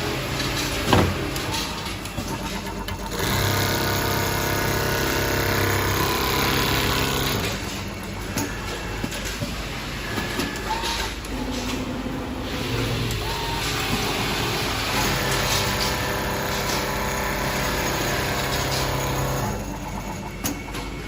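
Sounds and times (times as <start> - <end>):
sewing machine motor: 2.4 - 7.8, 13.7 - 20.2.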